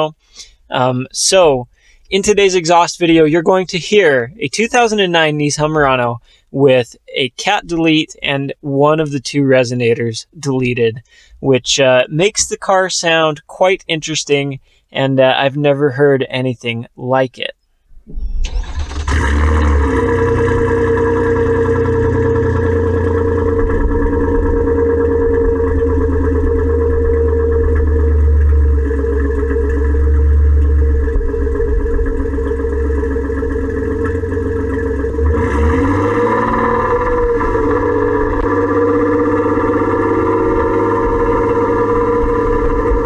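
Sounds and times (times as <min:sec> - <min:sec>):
car engine idling: 0:18.1 - 0:43.0.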